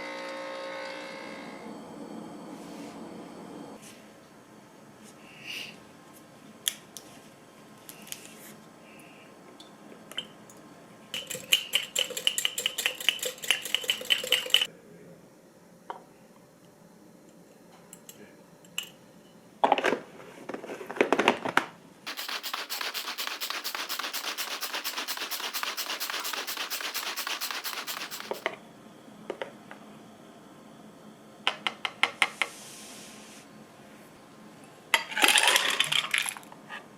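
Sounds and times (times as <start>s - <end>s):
fast rhythmic rattling: 11.2s - 14.7s, 22.1s - 28.4s
kitchen utensils clicking and knocking: 11.2s - 14.7s.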